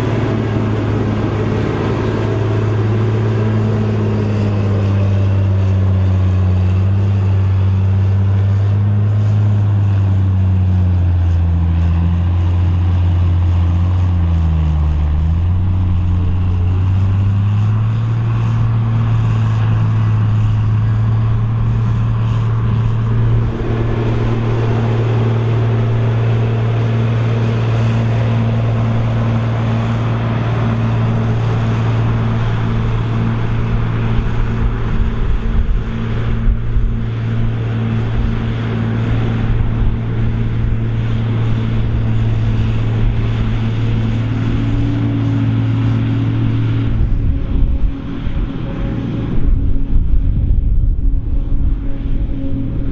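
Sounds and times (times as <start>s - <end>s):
diesel engine working under load: 0.0s - 52.9s.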